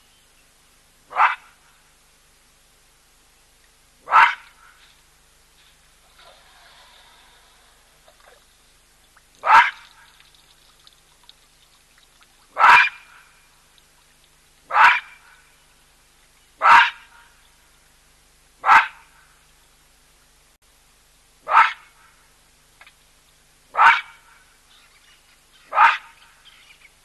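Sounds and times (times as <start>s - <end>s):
baboon barking: 1.1s - 1.6s, 4.0s - 4.6s, 9.4s - 10.0s, 12.5s - 13.1s, 14.7s - 15.2s, 16.6s - 17.3s, 18.6s - 19.1s, 21.4s - 22.0s, 23.7s - 24.4s, 25.6s - 26.6s.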